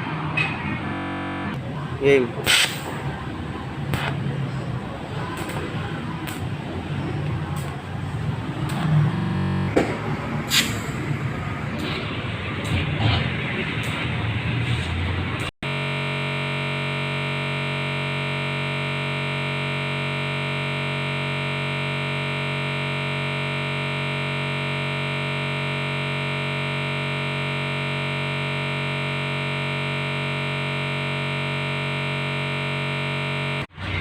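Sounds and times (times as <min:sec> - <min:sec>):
held electronic chord: 0:15.6 - 0:34.0.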